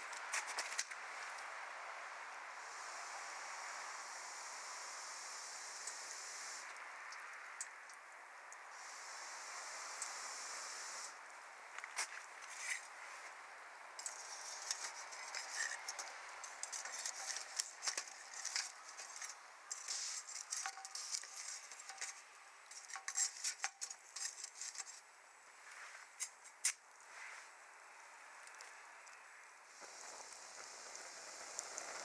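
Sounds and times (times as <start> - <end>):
wood fire crackling: 14.0 - 24.8, 29.8 - 32.0.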